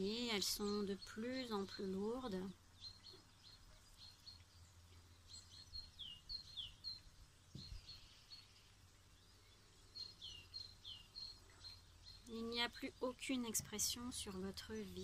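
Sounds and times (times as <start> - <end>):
faint birdsong: 0.0 - 15.0
soft low thump: 7.5 - 7.9.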